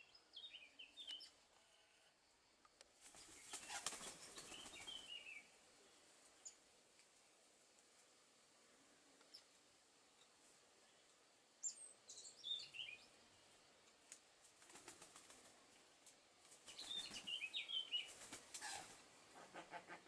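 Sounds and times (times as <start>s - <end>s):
fluttering wing beats: 2.9s - 5.4s, 14.1s - 15.8s, 16.4s - 20.0s.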